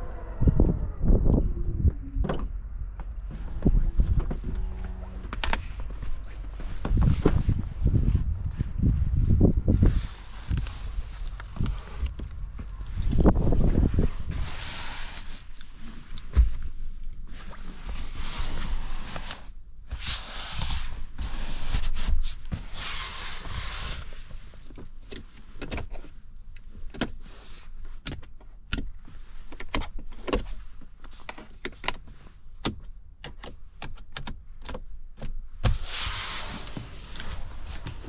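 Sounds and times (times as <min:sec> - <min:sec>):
wind rushing over microphone: 0:00.0 - 0:15.5.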